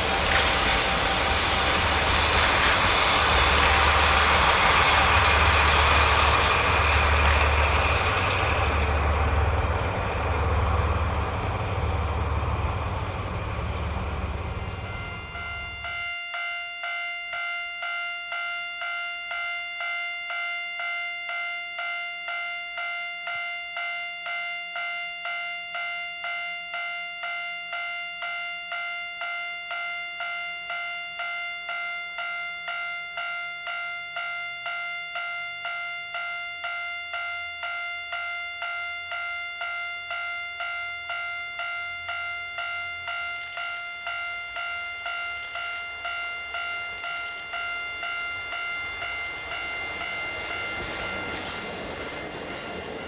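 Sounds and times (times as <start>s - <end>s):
level crossing bell ringing: 14.6s - 52.4s.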